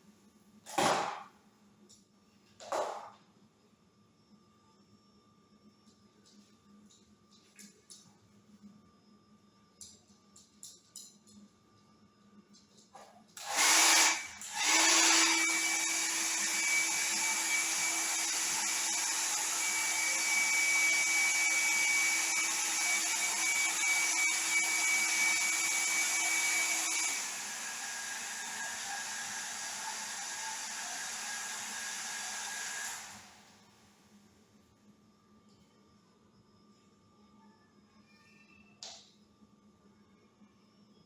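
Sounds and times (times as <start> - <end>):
hair dryer running: 13.4 - 33.7.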